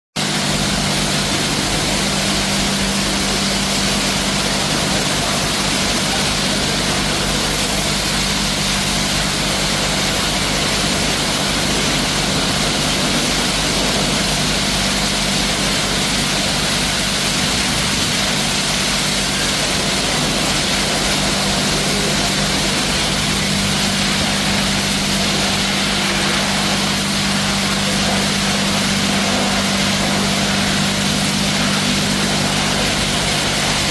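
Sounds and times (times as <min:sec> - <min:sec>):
high-pressure water spray hissing: 0:00.2 - 0:33.9
motor and pump hum: 0:00.2 - 0:33.9.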